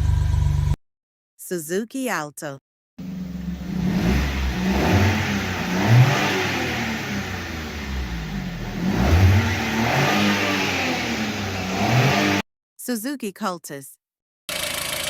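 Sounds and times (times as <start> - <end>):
car engine revving: 3.0 - 12.4.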